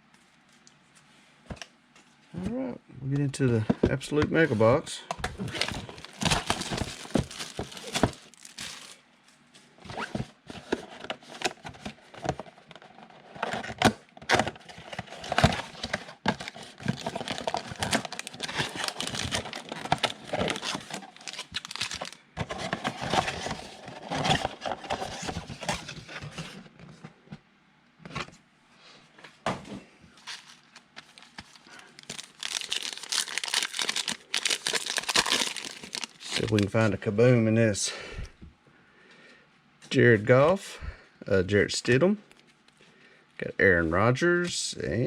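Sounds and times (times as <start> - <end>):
plastic wrapping tearing and crinkling: 5.4 - 9.0, 15.1 - 25.3, 30.2 - 36.8.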